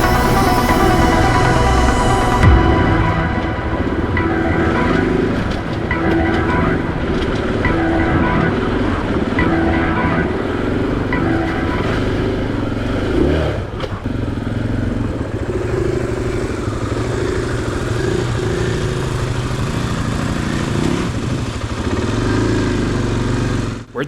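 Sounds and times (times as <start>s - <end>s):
engine revving: 0.0s - 23.9s
motorcycle engine running: 10.2s - 24.0s.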